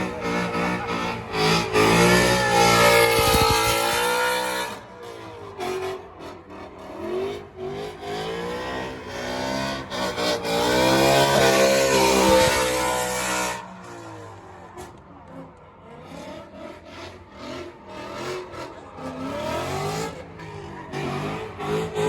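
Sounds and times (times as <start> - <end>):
car engine revving hard: 0.0 - 14.0, 15.3 - 22.0.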